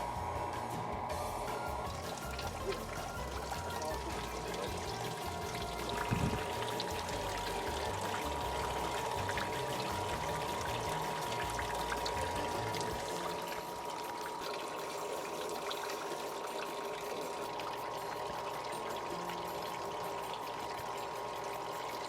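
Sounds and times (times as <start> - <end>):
thin whine: 0.0 - 22.0
water pouring and trickling: 0.9 - 22.0.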